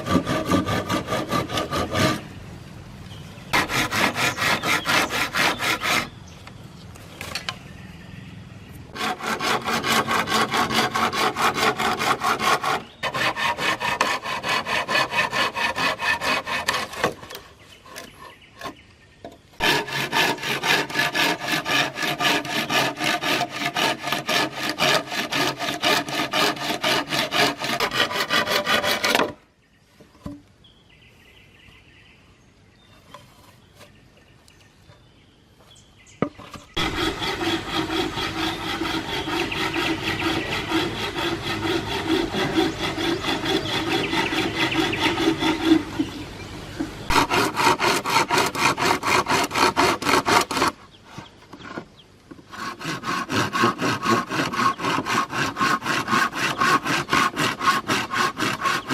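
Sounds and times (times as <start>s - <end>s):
hand saw cutting wood: 0.0s - 2.3s, 3.5s - 6.2s, 8.9s - 18.8s, 19.6s - 29.4s, 36.7s - 46.2s, 47.0s - 58.9s.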